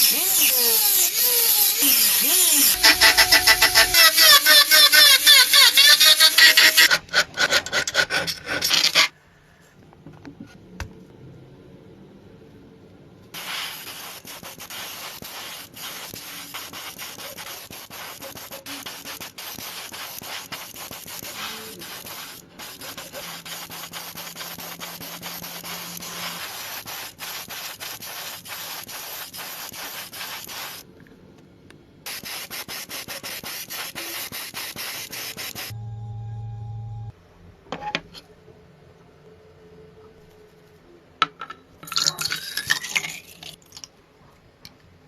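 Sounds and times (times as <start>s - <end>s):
sanding strokes on a surface: 0.1s - 9.0s, 13.4s - 30.8s, 32.1s - 35.7s.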